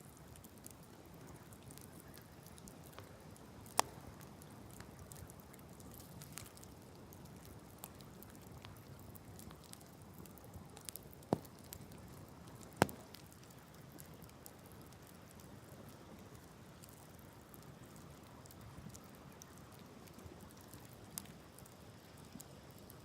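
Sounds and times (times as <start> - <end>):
bonfire crackling: 0.0 - 23.0
loud fire pops: 11.2 - 11.9, 12.6 - 13.4.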